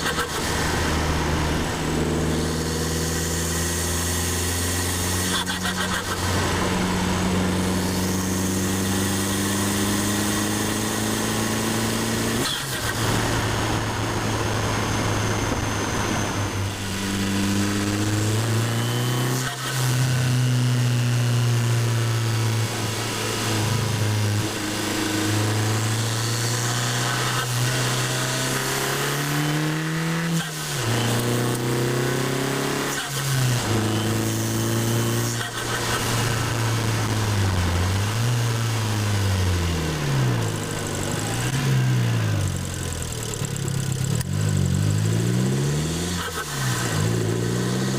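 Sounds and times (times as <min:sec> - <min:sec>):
car engine revving under acceleration: 0:00.0 - 0:47.9.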